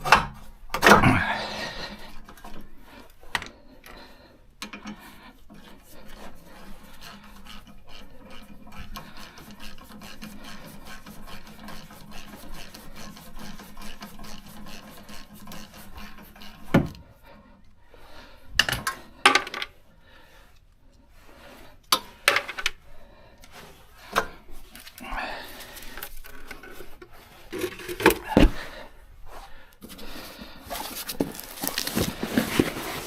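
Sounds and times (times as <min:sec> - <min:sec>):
scraping on brake parts: 0:23.4 - 0:33.0.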